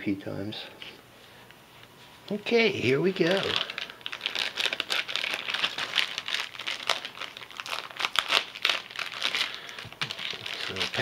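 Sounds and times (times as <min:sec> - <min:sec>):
packaging crinkling: 0:02.5 - 0:11.0.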